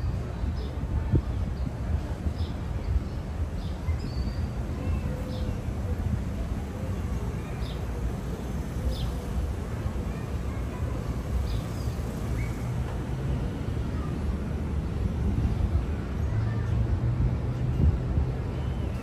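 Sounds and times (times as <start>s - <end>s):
low rumble of city noise: 0.0s - 19.0s.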